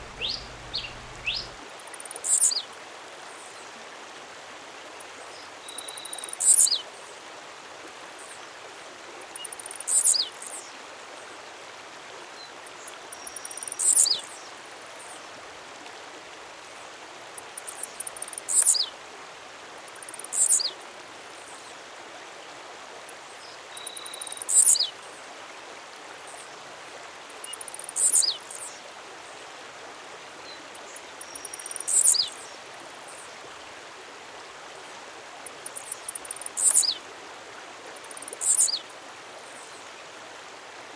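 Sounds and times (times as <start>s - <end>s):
faint soft bird chips: 0.0s - 1.6s
songbird falling note: 0.0s - 1.6s
steady hiss: 0.0s - 1.6s.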